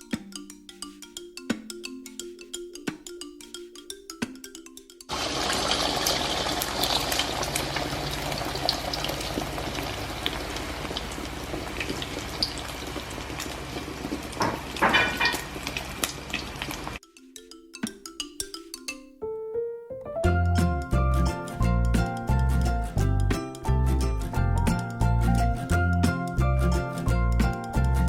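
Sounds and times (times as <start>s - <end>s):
hot oil sizzling and crackling: 5.1s - 17.0s.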